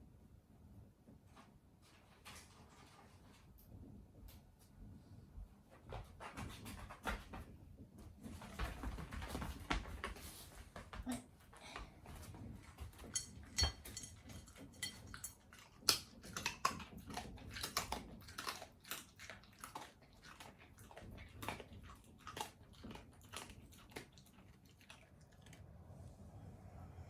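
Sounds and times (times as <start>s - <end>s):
pet crunching food: 12.4s - 26.0s.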